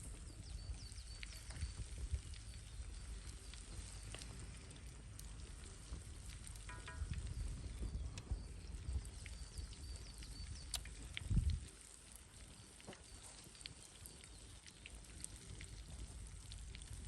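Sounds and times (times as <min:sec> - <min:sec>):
wind buffeting microphone: 0:00.0 - 0:13.0
campfire crackling and popping: 0:00.0 - 0:17.0.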